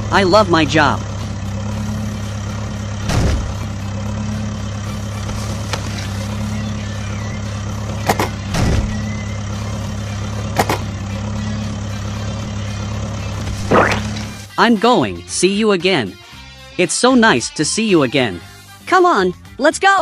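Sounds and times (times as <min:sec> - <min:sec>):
truck engine idling: 0:00.0 - 0:14.6, 0:18.2 - 0:19.6
short knocks or whooshes: 0:13.6 - 0:14.2.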